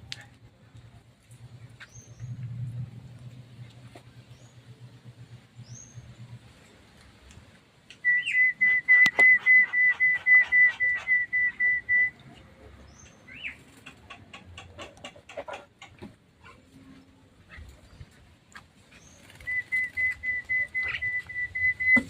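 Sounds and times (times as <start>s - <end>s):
bird whistling calls: 8.0s - 12.2s, 18.9s - 22.0s.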